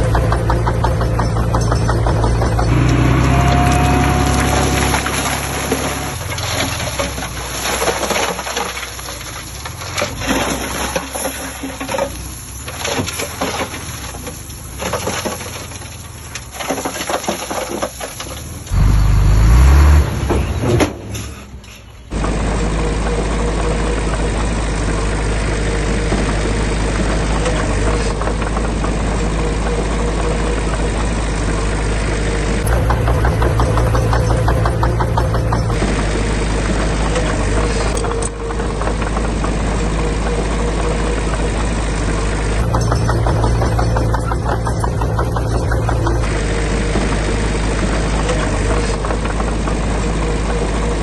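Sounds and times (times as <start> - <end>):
loud low rumble: 0.0 - 7.0, 29.0 - 39.0
heavy machinery diesel engines: 0.0 - 51.0.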